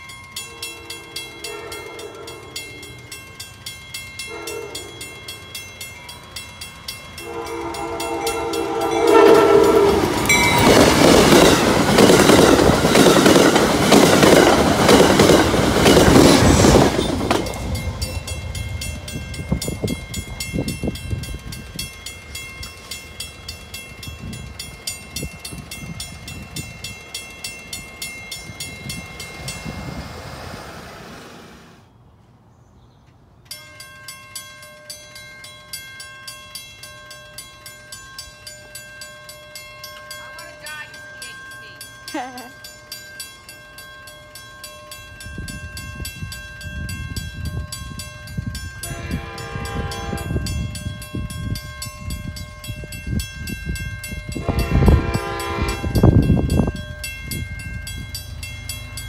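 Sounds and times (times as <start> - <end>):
crossing bell ringing: 0.0 - 30.2, 33.3 - 59.0
train passing close by: 0.0 - 32.5, 33.2 - 59.0
train horn blast: 0.6 - 2.6, 4.3 - 5.0, 7.2 - 10.8, 48.8 - 50.6, 54.4 - 56.2.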